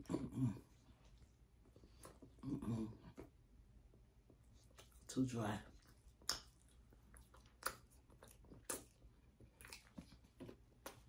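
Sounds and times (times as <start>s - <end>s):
chewing pasta: 0.0s - 11.0s
wet mouth clicks: 5.8s - 11.0s.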